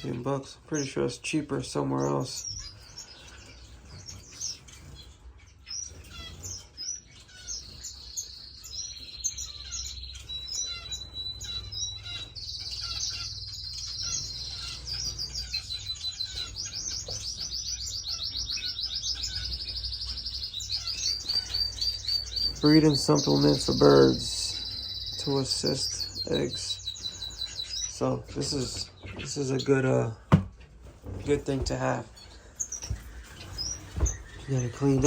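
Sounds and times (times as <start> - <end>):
finches chirping and calling: 0.0 - 35.0.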